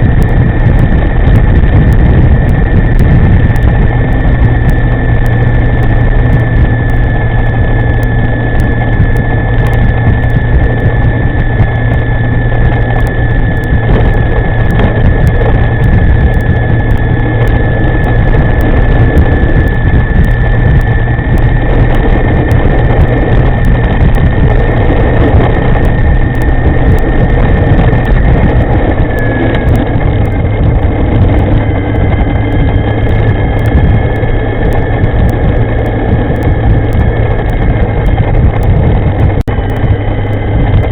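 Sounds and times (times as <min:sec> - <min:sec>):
electric motor whine: 0:00.0 - 0:40.9
wind rushing over microphone: 0:00.0 - 0:40.9.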